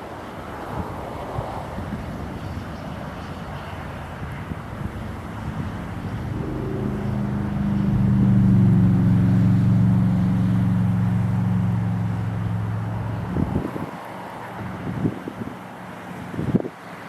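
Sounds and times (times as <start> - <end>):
river noise: 0.0 - 17.0
wind: 0.0 - 17.0
vehicle engine passing: 4.6 - 16.3.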